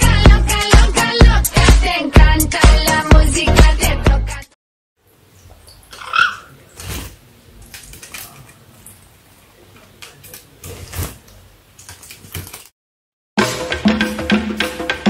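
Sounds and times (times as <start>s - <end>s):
music with drums: 0.0s - 4.4s, 13.4s - 15.0s.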